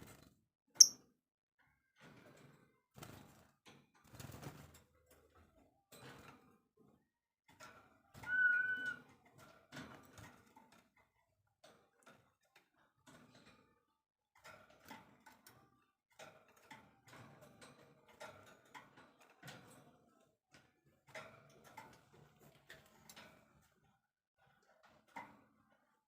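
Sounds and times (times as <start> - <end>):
bird whistled note: 8.3 - 9.0.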